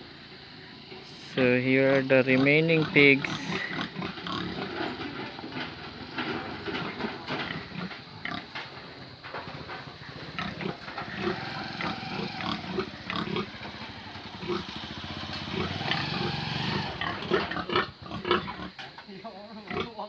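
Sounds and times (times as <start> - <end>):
pigs grunting: 0.8 - 18.9, 19.6 - 20.0
knocks and shuffling: 1.0 - 14.2.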